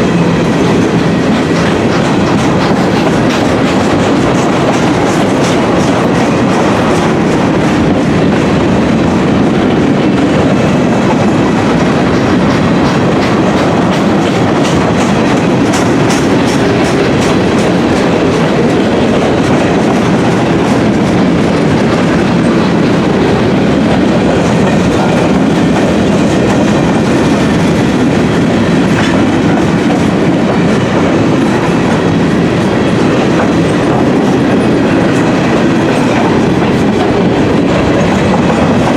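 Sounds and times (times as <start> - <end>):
freight train rumble: 0.0 - 38.9
steel wheels clicking over rail joints: 0.1 - 38.9.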